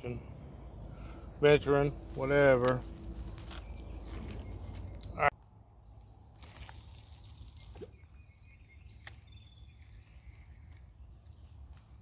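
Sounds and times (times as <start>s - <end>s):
faint bird chirps: 3.5s - 11.6s.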